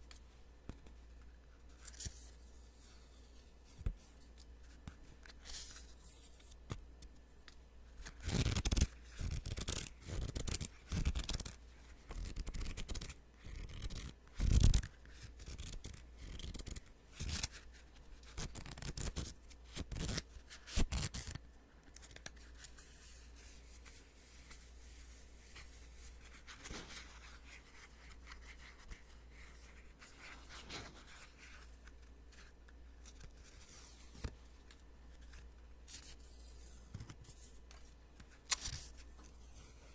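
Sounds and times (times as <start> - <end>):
paper rustling: 22.0 - 32.0.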